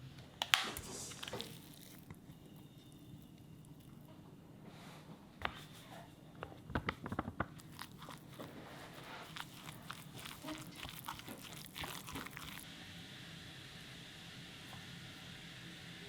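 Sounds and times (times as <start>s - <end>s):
crunchy food being chewed: 1.1s - 4.1s, 7.5s - 12.7s.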